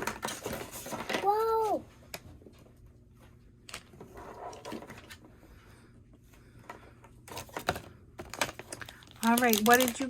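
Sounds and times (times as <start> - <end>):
packaging being handled: 7.3 - 10.0.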